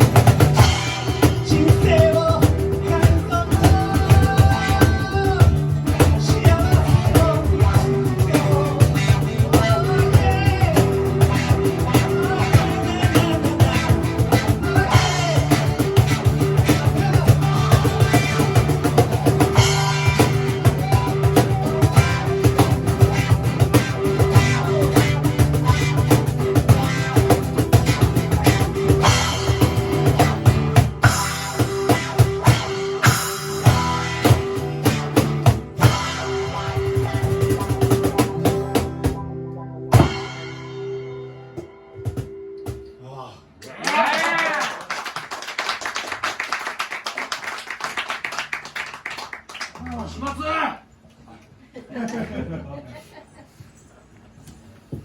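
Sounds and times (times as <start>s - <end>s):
drum kit: 0.0s - 43.0s
electric guitar lead line: 0.0s - 43.0s
bass guitar: 0.0s - 44.6s.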